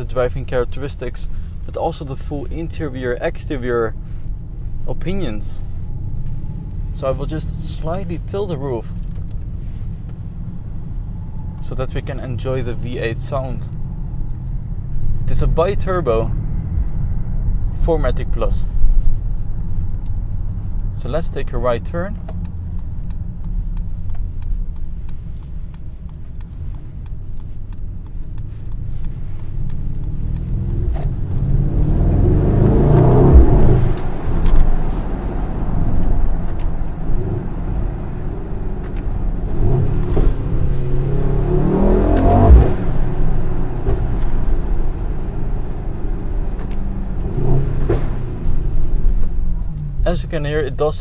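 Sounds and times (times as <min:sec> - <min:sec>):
car engine accelerating: 0:00.0 - 0:51.0
exhaust pops and bangs: 0:32.9 - 0:35.2, 0:46.4 - 0:49.4.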